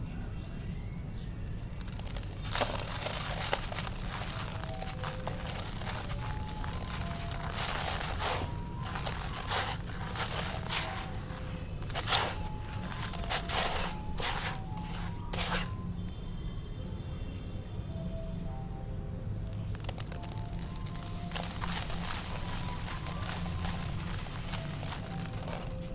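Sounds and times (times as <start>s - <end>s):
faint soft music: 0.0s - 25.9s
concrete crumbling and crunching: 1.8s - 15.8s, 19.5s - 25.9s.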